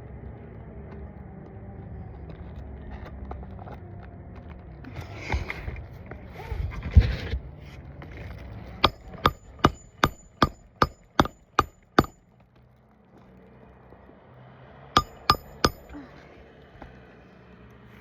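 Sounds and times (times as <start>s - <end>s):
hammer striking roofing nail: 8.8s - 12.2s, 15.0s - 16.0s.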